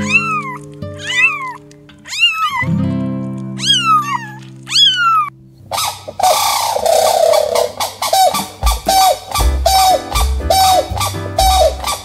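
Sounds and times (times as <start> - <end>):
plucked guitar music: 0.0 - 2.0, 2.6 - 4.7, 7.0 - 12.0
kitten meowing: 0.0 - 2.7, 3.6 - 5.3.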